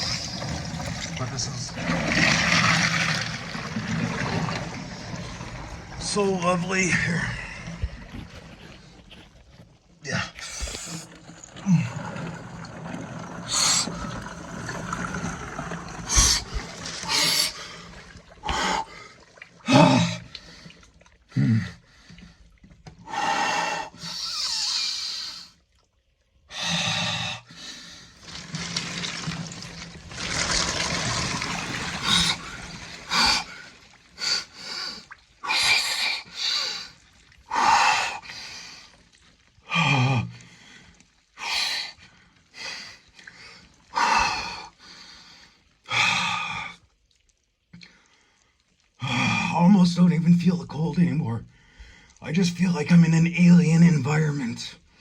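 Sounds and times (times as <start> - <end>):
water sloshing: 0.0 - 23.1, 27.6 - 45.8.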